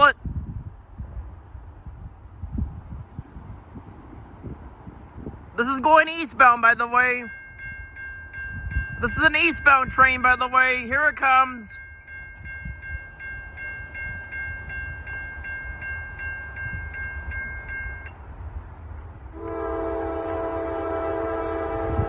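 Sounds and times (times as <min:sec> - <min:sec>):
crossing warning bell ringing: 0:05.6 - 0:22.0
locomotive air horn: 0:19.3 - 0:22.0.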